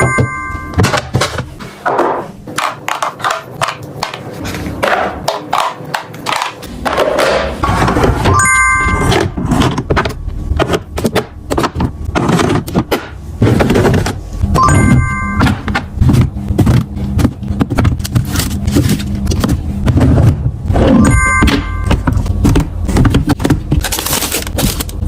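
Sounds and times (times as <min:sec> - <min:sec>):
containers and packaging clattering: 0:08.9 - 0:25.0.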